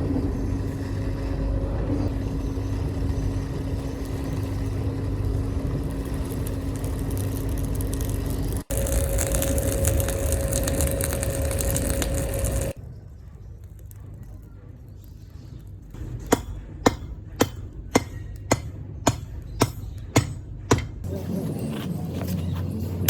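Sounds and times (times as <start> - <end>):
loud mechanical whir: 0.0 - 12.8
hammer striking metal on anvil: 16.0 - 21.1.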